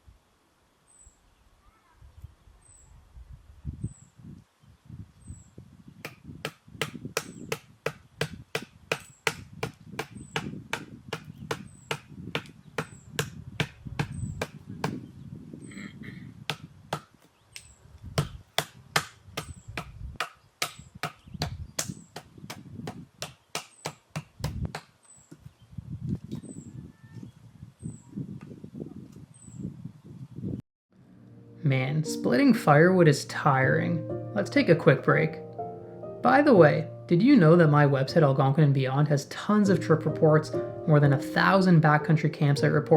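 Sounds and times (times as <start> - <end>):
small bird chirping: 0.8 - 3.0, 3.8 - 5.6, 11.3 - 12.0, 20.4 - 22.2, 25.0 - 28.3, 29.2 - 30.6
firewood chopping knocks: 6.0 - 15.0, 16.5 - 17.2, 18.2 - 24.9.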